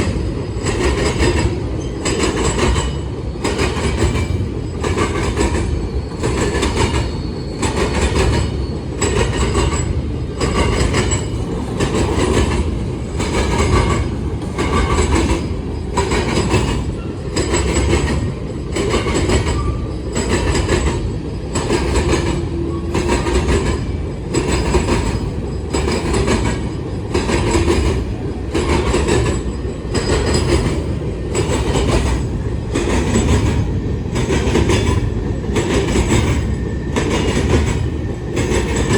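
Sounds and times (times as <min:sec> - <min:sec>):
wheels clacking over rail joints: 0:00.0 - 0:38.9
wheels squealing: 0:04.6 - 0:20.7.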